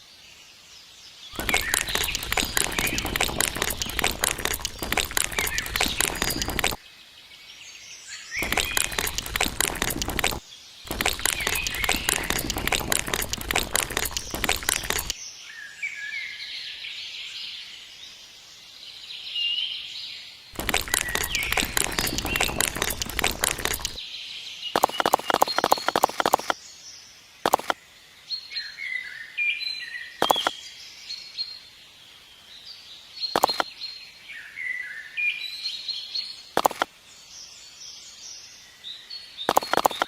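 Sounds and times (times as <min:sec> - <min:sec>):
birds chirping: 0:01.4 - 0:06.8, 0:08.4 - 0:15.2, 0:20.6 - 0:24.0, 0:33.4 - 0:33.7, 0:39.5 - 0:40.0
rapid crackling clicks: 0:01.4 - 0:06.8, 0:08.4 - 0:15.2, 0:20.6 - 0:24.0, 0:24.8 - 0:26.6, 0:27.5 - 0:27.8, 0:30.2 - 0:30.5, 0:33.4 - 0:33.6, 0:36.6 - 0:36.9, 0:39.5 - 0:40.0.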